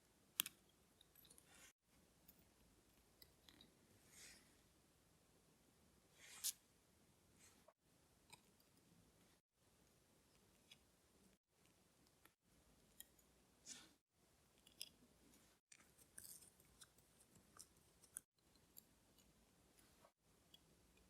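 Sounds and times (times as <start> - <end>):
small metal tool clicks and scrapes: 14.5 - 15.0, 15.7 - 19.3.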